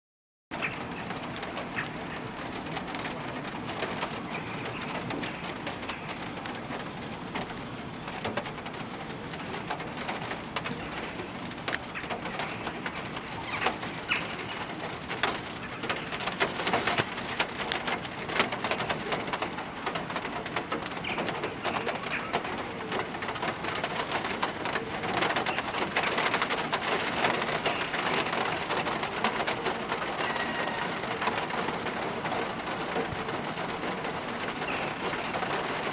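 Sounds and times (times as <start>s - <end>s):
rooks calling: 0.5s - 8.2s, 10.6s - 14.9s, 21.0s - 24.2s, 25.2s - 35.9s
rain falling: 0.5s - 35.9s.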